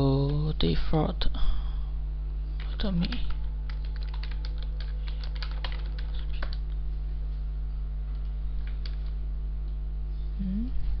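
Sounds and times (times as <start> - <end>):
electrical hum: 0.0 - 11.0
keyboard typing: 2.6 - 6.7, 8.6 - 9.2.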